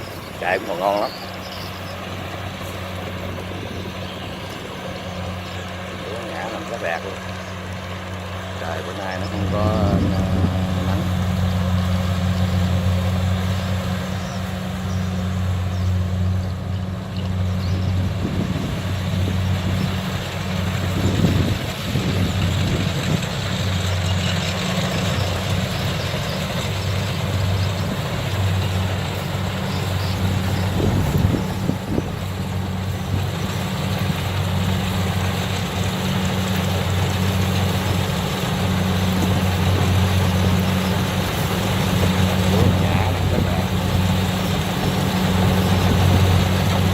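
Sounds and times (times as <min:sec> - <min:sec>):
diesel engine running: 0:00.0 - 0:46.9
threshing machinery clatter: 0:17.2 - 0:46.9.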